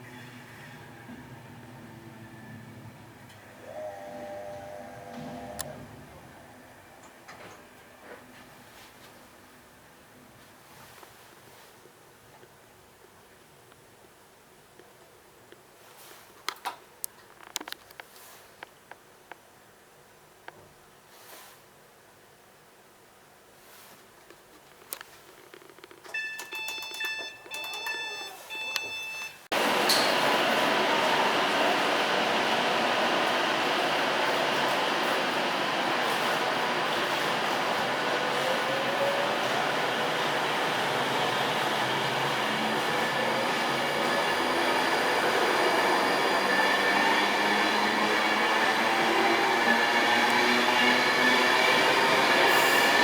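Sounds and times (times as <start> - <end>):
electric train running: 0.0 - 8.0, 29.5 - 53.0
short electronic beeps: 26.2 - 29.4.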